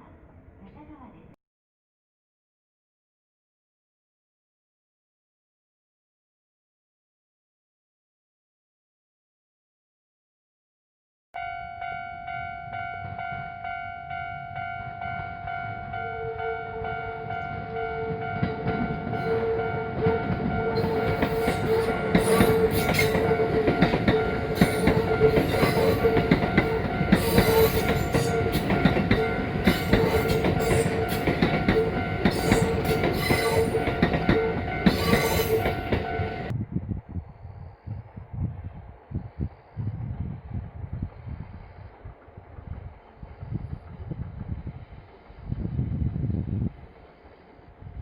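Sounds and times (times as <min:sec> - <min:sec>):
train wheels clattering on rails: 0:18.3 - 0:36.5.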